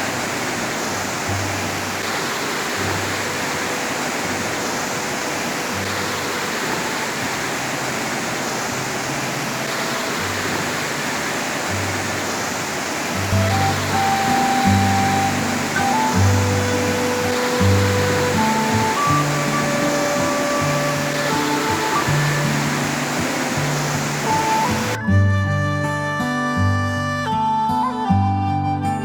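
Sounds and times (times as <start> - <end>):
waterfall roar: 0.0 - 25.0
low background music: 13.2 - 28.8.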